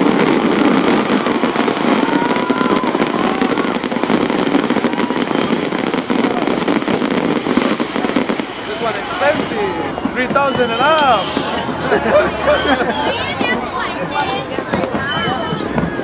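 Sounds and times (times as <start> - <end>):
fireworks crackling and popping: 0.0 - 16.0.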